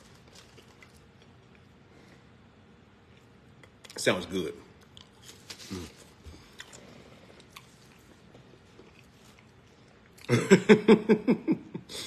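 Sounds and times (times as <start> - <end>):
man chewing food: 0.0 - 4.0, 4.7 - 10.6
man chuckling: 10.2 - 12.0.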